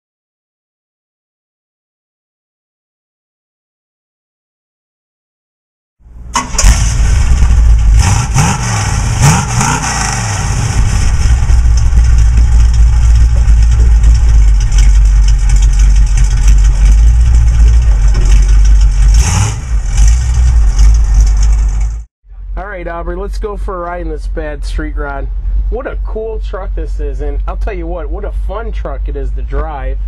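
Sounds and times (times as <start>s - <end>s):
car engine revving: 6.1s - 22.0s.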